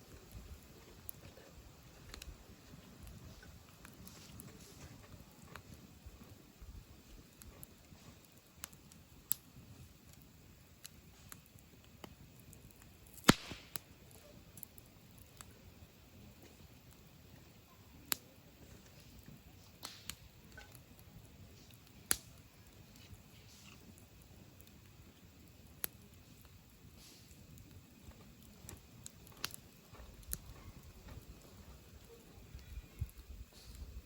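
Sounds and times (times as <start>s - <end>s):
firewood crackling and popping: 0.0s - 34.0s
brief hiss: 13.2s - 13.9s.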